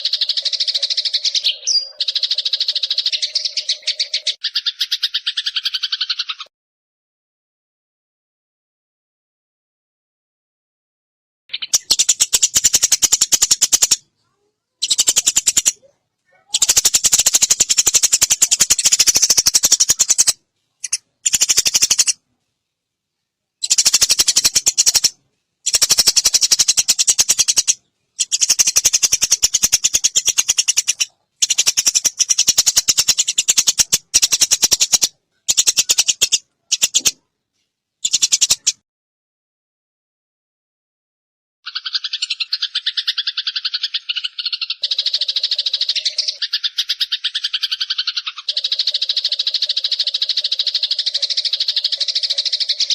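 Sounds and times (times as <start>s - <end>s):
songbird clicking rattles: 0.0s - 1.4s, 11.6s - 14.0s, 14.8s - 15.8s, 16.5s - 22.2s, 23.6s - 37.2s, 38.0s - 38.8s, 41.7s - 52.9s.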